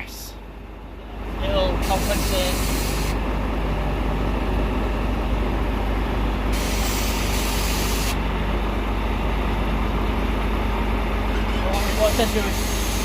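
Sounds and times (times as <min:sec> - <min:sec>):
diesel truck engine running: 0:00.0 - 0:13.0
air hissing: 0:01.8 - 0:03.2, 0:06.5 - 0:08.2, 0:11.6 - 0:13.0.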